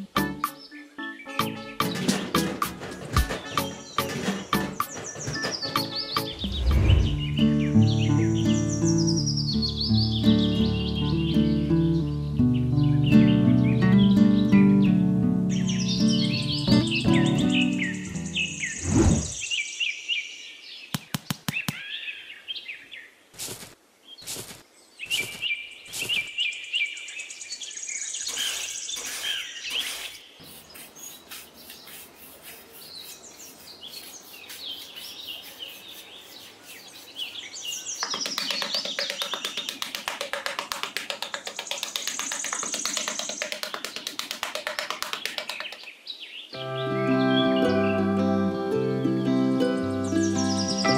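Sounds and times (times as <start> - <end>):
birds chirping: 0.0 - 23.2, 24.1 - 50.9
metal trowel scraping in sand: 28.3 - 37.3.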